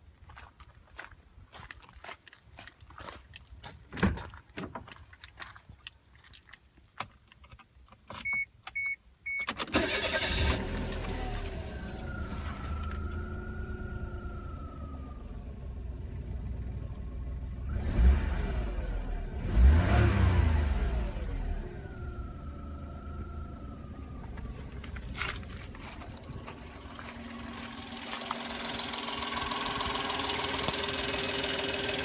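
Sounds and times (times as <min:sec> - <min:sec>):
car engine cranking and idling: 0:09.5 - 0:32.0
engine whine: 0:09.7 - 0:32.0
engine revving: 0:09.8 - 0:24.7, 0:26.7 - 0:32.0.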